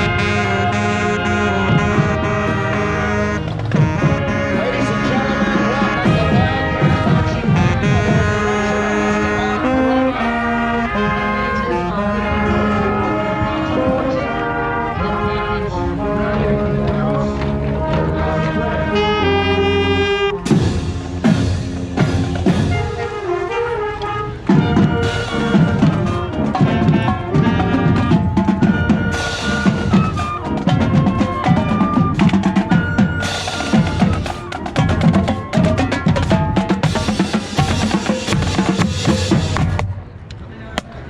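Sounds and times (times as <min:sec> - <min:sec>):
snare and bass drums beat: 0:00.0 - 0:08.7, 0:20.3 - 0:23.4, 0:24.4 - 0:40.0
brass holding chords: 0:00.0 - 0:39.8.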